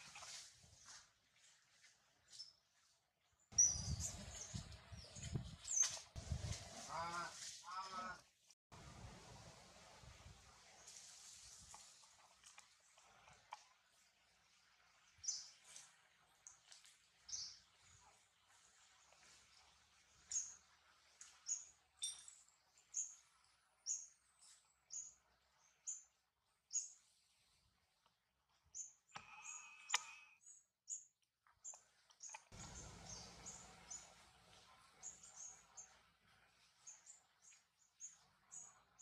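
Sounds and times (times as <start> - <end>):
bird chirping: 3.6 - 6.0, 28.7 - 34.2
rustling noise: 3.9 - 7.7, 8.8 - 12.4.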